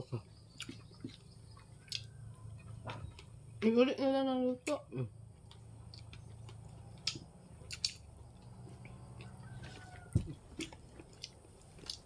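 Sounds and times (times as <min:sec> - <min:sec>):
low steady hum: 0:00.0 - 0:12.0
chewing and mouth smacks: 0:00.5 - 0:03.4, 0:05.4 - 0:12.0.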